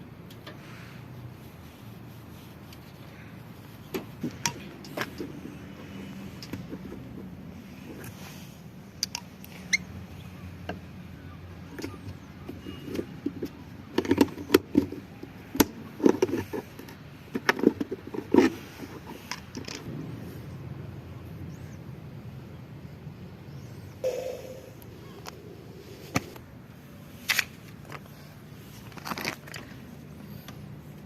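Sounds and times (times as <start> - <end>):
steady low hum: 19.8 - 31.0.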